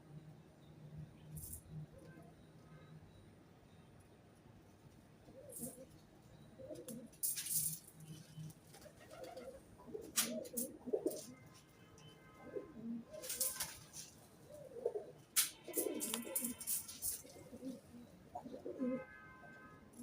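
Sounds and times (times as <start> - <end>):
pigeons cooing: 5.2 - 7.2, 8.8 - 11.4, 12.4 - 19.0.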